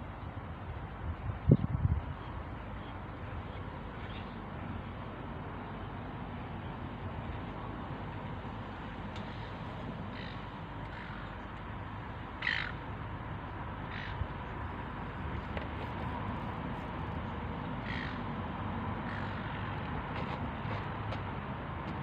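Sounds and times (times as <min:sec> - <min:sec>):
steady background noise: 0:00.0 - 0:22.0
bird harsh calls: 0:09.3 - 0:11.4, 0:12.4 - 0:12.8, 0:13.9 - 0:14.3, 0:17.8 - 0:18.3, 0:19.0 - 0:19.5.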